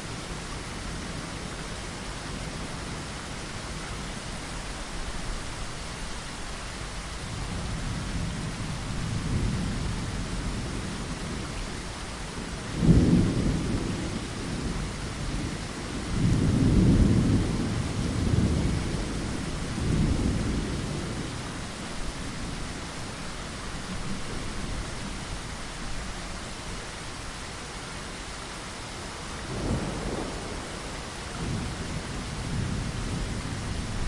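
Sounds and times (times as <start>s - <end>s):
rain against a window: 0.0s - 34.0s
thunder rumbling: 7.4s - 22.6s, 29.4s - 34.0s.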